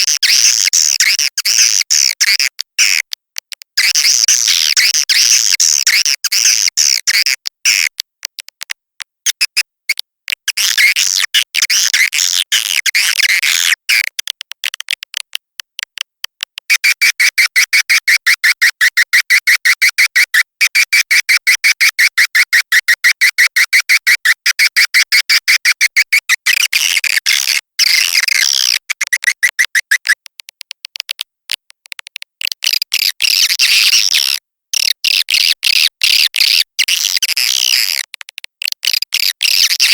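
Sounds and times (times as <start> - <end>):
fast even clicking: 0.0 - 39.9
swiftlets twittering: 29.0 - 30.2.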